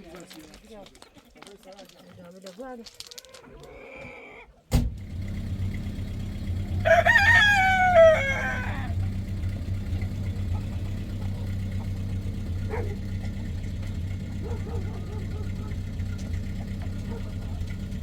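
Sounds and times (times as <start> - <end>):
rooster crowing: 6.7 - 9.2.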